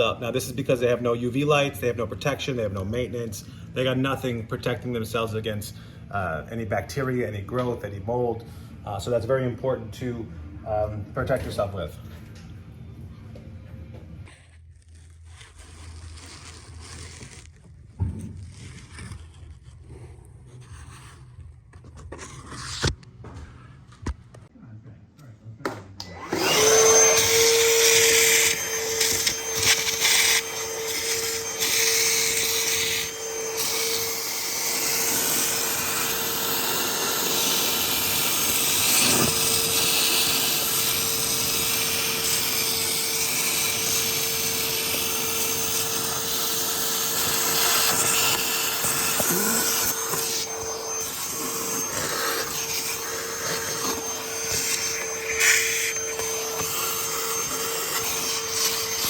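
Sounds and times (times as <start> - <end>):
shop vacuum running: 25.6 - 59.0.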